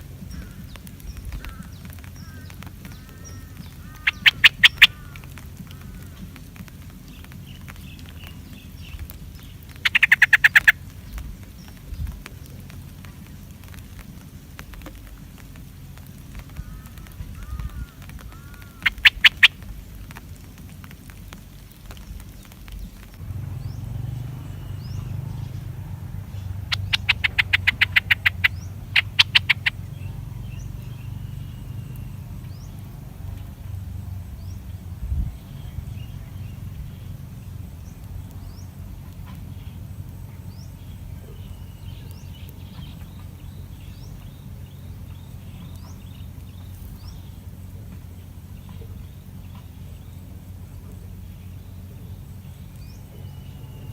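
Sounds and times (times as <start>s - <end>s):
loud rapid rattling call: 0.0s - 11.2s, 16.3s - 19.7s, 23.3s - 32.7s
birds chirping: 0.0s - 53.9s
low rumble: 0.0s - 53.9s.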